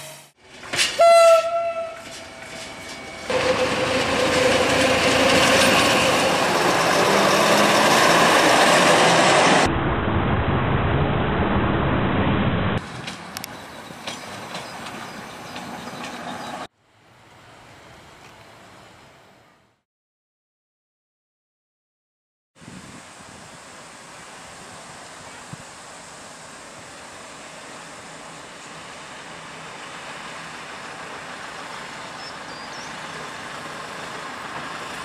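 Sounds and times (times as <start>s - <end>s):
train horn blast: 0.9s - 2.6s.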